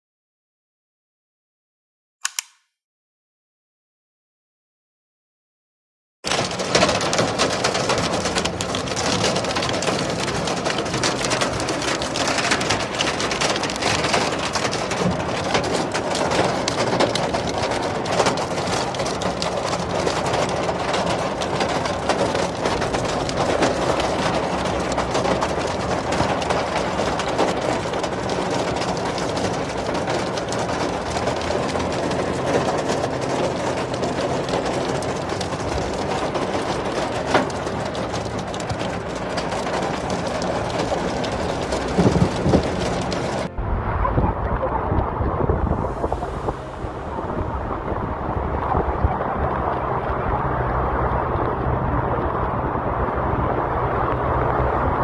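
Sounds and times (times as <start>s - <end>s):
heavy rain pouring: 6.3s - 55.0s
raindrops hitting close by: 6.3s - 55.0s.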